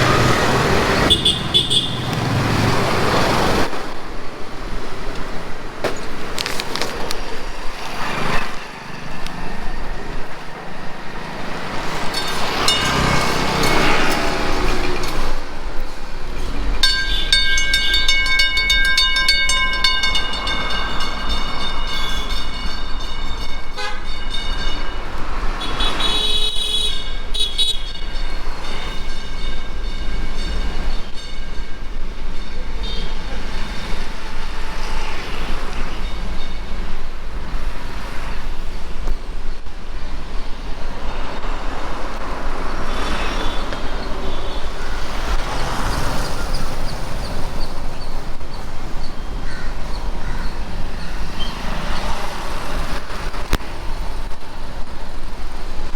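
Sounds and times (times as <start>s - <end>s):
vehicle horn: 0.0s - 2.8s, 23.7s - 24.3s, 25.5s - 30.5s, 32.6s - 33.5s, 42.9s - 45.2s
street traffic: 0.0s - 55.9s.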